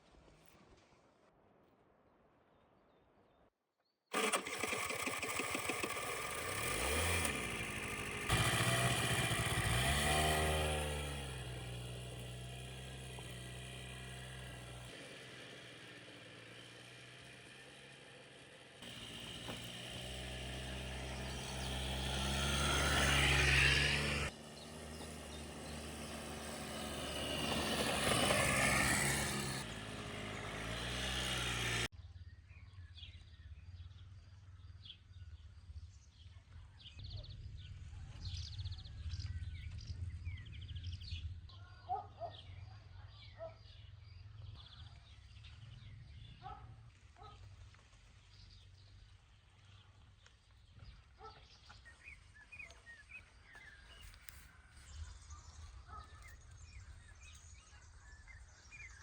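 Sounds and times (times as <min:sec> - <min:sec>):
vehicle engine accelerating: 0:04.1 - 0:31.9.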